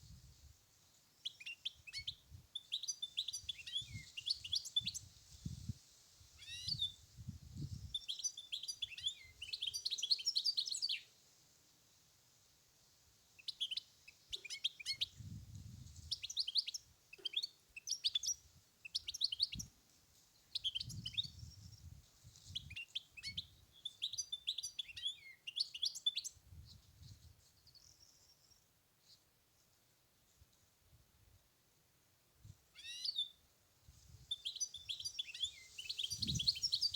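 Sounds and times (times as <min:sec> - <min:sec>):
bird twittering and trilling: 0:01.3 - 0:05.1, 0:06.4 - 0:06.9, 0:07.8 - 0:11.0, 0:16.1 - 0:19.7, 0:22.6 - 0:26.4, 0:32.8 - 0:33.3, 0:34.3 - 0:36.9.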